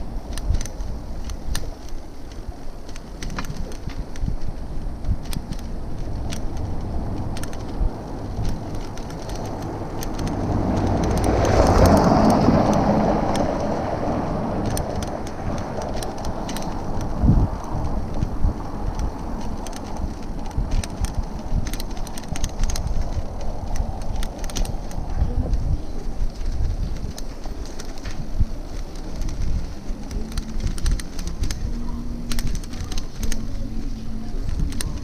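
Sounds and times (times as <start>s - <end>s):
steady rushing noise: 0.0s - 35.0s.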